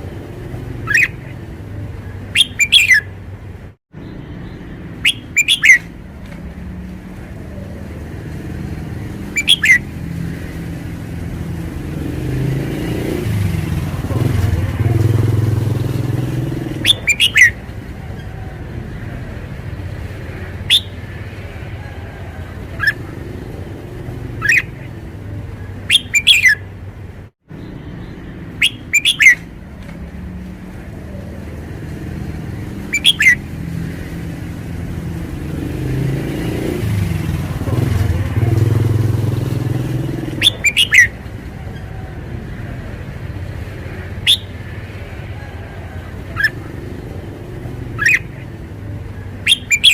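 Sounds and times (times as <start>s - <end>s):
bird singing whistled phrases: 0.8s - 1.3s, 2.3s - 3.1s, 5.0s - 5.9s, 9.3s - 9.9s, 16.8s - 17.6s, 20.7s - 21.0s, 24.4s - 24.8s, 25.9s - 26.6s, 28.6s - 29.5s, 32.9s - 33.4s, 40.4s - 41.8s, 44.2s - 44.6s, 48.0s - 48.4s, 49.4s - 49.9s.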